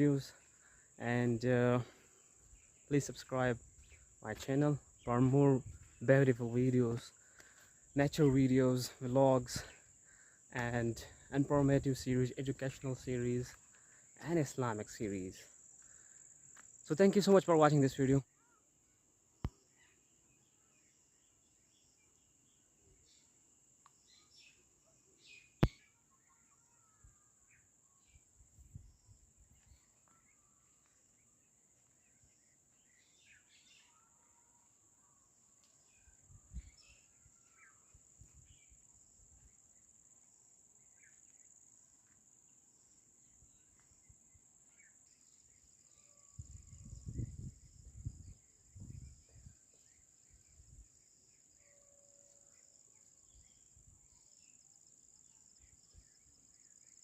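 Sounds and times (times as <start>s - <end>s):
insect drone: 6.6s - 57.0s
faint bird chirps: 12.7s - 57.0s.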